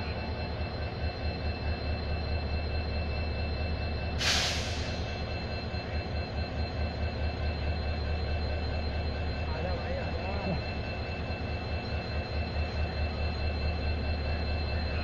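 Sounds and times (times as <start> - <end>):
low hum of standing trains: 0.0 - 15.0
air brake hiss: 4.2 - 5.1.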